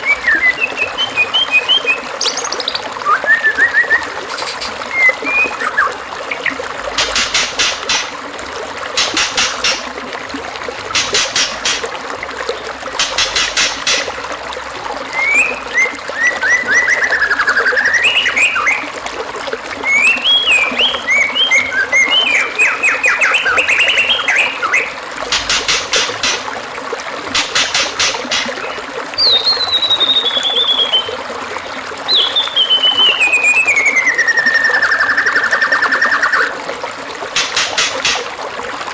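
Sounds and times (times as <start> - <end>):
songbird calls and whistles: 0.0 - 6.6, 15.1 - 18.9, 19.8 - 24.9, 27.8 - 31.2, 32.1 - 36.5
running water trickling: 0.0 - 38.9.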